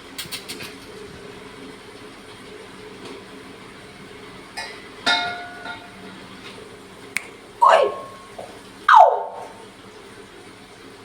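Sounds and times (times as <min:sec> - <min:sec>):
parrot call: 0:07.6 - 0:09.6.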